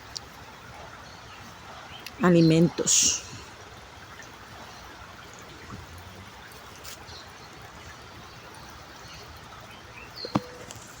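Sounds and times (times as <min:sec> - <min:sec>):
faint rural yard background: 0:00.0 - 0:11.0.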